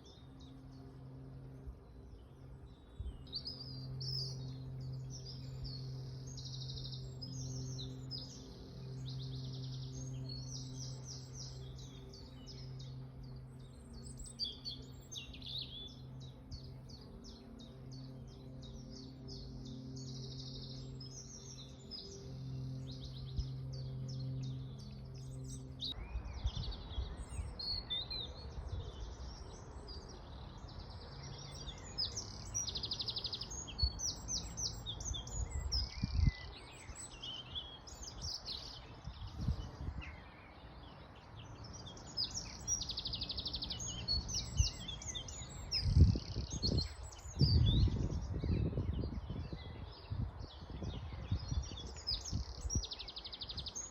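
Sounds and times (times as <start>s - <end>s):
steady low hum: 0.0s - 27.0s
songbirds singing and chirping: 0.0s - 53.9s.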